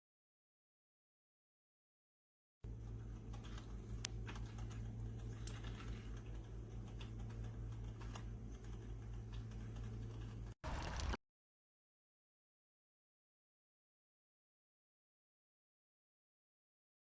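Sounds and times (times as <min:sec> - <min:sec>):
coffee maker humming: 0:10.6 - 0:11.2.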